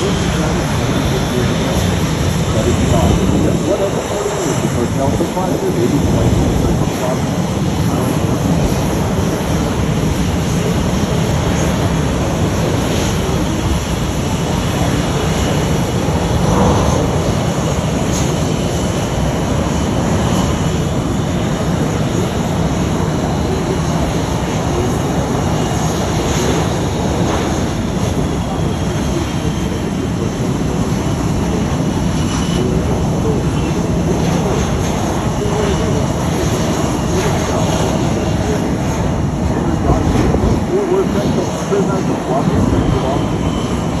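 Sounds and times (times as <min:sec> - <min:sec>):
jet aircraft engines running: 0:00.0 - 0:44.0.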